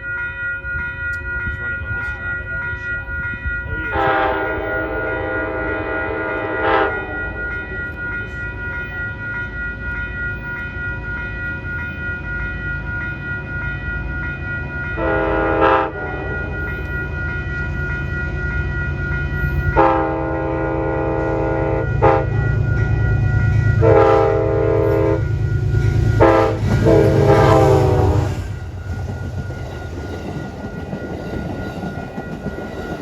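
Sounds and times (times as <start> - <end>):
train rumbling: 0.0 - 33.0
train horn blasts: 3.9 - 7.3, 15.0 - 16.6, 19.7 - 29.0.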